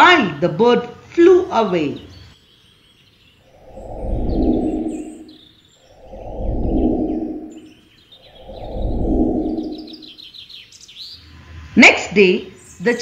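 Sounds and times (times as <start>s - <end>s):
small birds chirping: 1.2s - 11.5s, 12.1s - 13.0s
swells of rushing noise: 3.5s - 10.1s.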